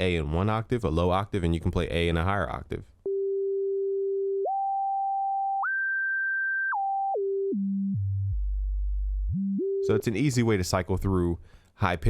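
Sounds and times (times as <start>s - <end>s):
sine-wave synthesizer tone: 3.1s - 10.0s.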